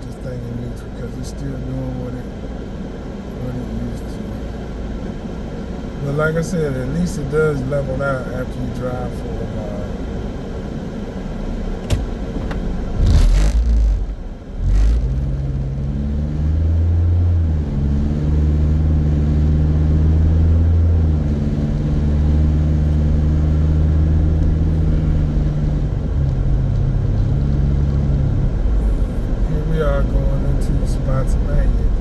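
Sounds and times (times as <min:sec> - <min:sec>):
car engine running: 0:00.0 - 0:32.0
loud thumps: 0:11.8 - 0:15.2.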